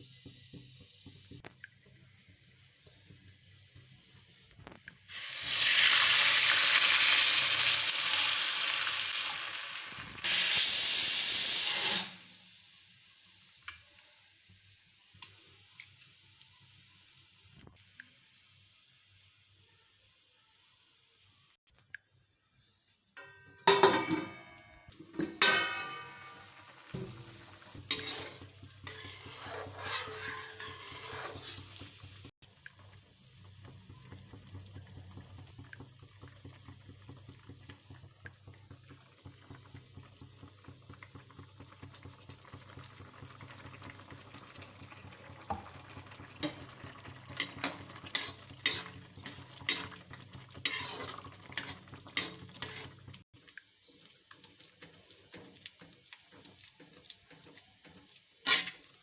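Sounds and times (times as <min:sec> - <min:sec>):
metal spoon scraping metal pot: 0:27.0 - 0:31.8, 0:47.3 - 0:50.0, 0:50.6 - 0:53.0, 0:58.4 - 0:58.9.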